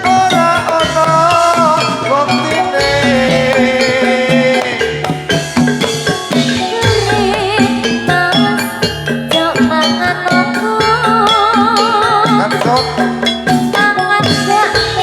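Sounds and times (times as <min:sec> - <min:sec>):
drums: 0:00.0 - 0:15.0
metal-keyed mallet instruments: 0:00.0 - 0:15.0
wavering melody with vibrato: 0:00.0 - 0:15.0.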